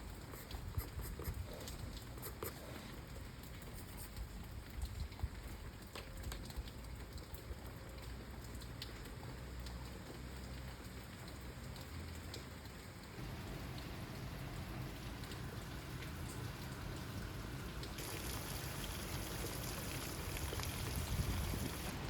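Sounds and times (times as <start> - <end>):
steady rain falling: 2.9 - 22.0
drops ticking: 13.1 - 22.0.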